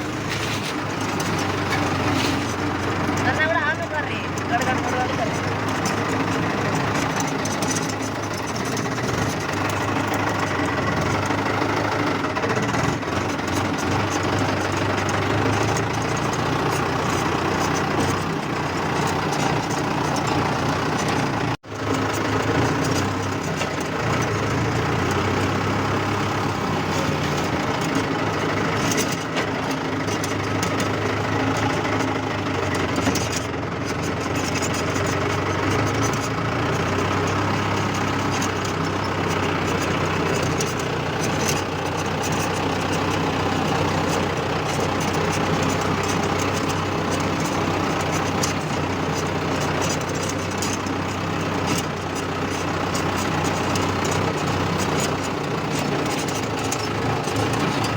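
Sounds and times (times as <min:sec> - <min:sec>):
diesel tractor engine running: 0:00.0 - 0:57.9.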